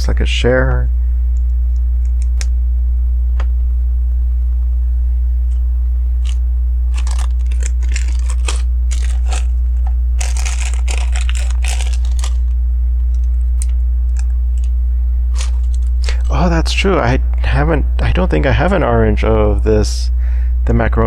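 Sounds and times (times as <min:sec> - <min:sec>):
low electrical hum: 0:00.0 - 0:21.0
plastic pieces rustling: 0:06.2 - 0:12.5, 0:15.3 - 0:16.4.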